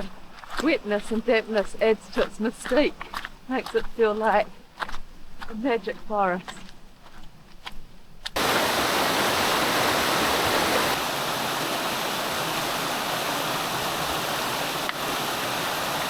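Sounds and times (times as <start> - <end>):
waterfall rushing: 8.4 - 16.0.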